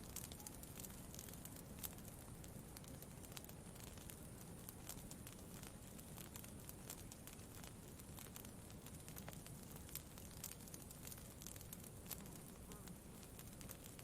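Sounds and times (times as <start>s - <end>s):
campfire crackling: 0.0s - 14.0s
low background hiss: 0.0s - 14.0s.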